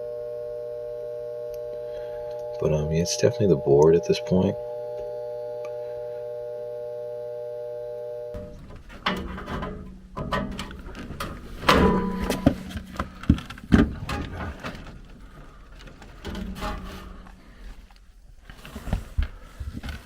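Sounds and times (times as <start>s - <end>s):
low hum: 0.0s - 18.8s
handling knocks and clicks: 8.4s - 20.0s.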